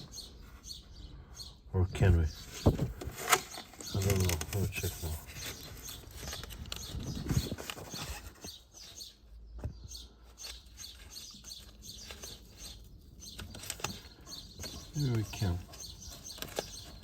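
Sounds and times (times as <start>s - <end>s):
clicks and rattles of handling: 2.6s - 8.6s, 10.4s - 17.0s.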